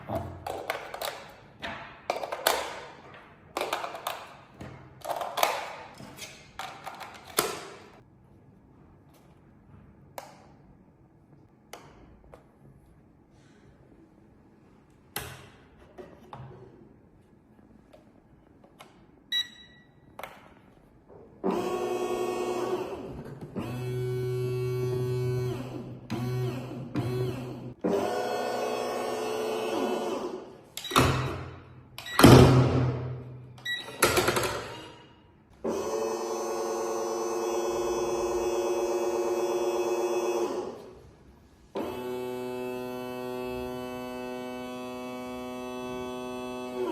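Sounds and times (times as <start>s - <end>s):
electric motors whirring: 21.5s - 30.3s, 41.8s - 46.9s.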